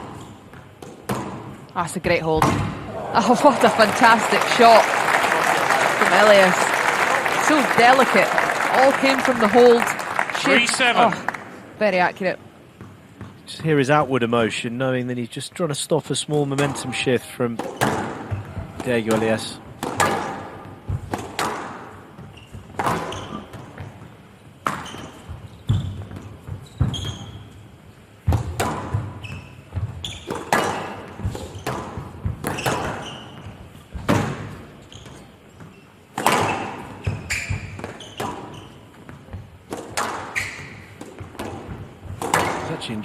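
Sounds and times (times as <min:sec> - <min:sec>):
squash ball hit by racket: 0:00.0 - 0:01.6, 0:02.4 - 0:02.9, 0:17.6 - 0:23.8, 0:28.2 - 0:33.4, 0:34.0 - 0:34.6, 0:36.1 - 0:38.5, 0:39.6 - 0:42.8.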